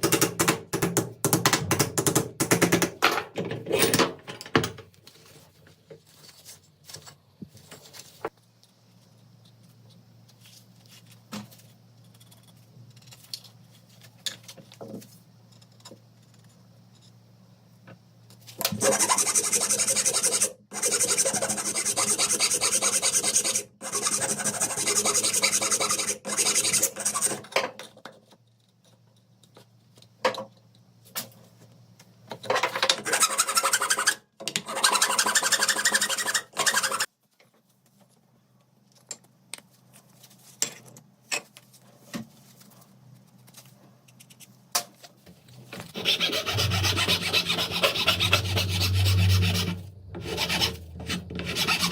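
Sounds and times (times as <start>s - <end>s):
abrasive scraping on metal: 45.9s - 51.9s.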